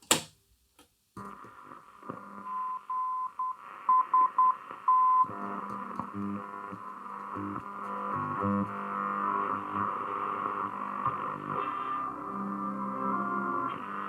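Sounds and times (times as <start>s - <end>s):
radio band hiss: 3.6s - 14.0s.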